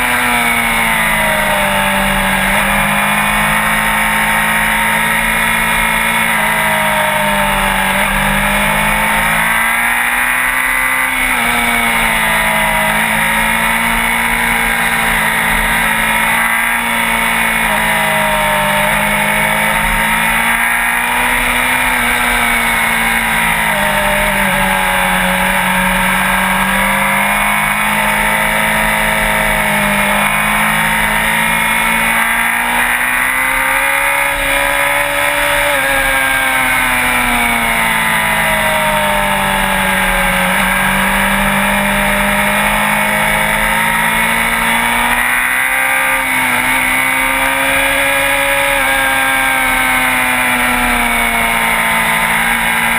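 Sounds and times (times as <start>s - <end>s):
motorbike engine running: 0.0s - 52.9s.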